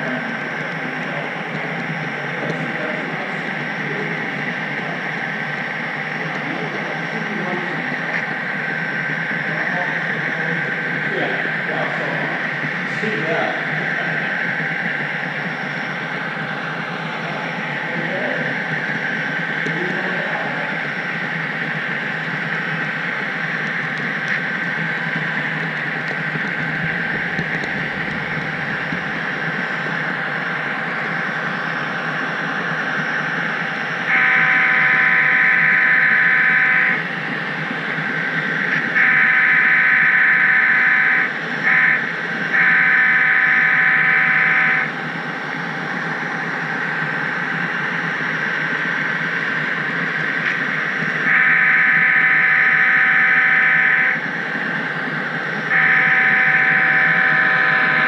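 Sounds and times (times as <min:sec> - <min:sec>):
model locomotive horn: 0:34.1 - 0:37.0, 0:39.0 - 0:44.9, 0:51.3 - 0:54.2, 0:55.7 - 0:58.0
model train whirring: 0:55.6 - 0:58.0.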